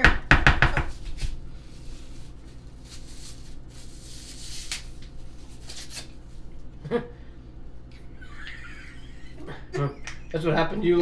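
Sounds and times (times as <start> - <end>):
low steady hum: 0.0 - 11.0
fork scraping: 1.1 - 6.5.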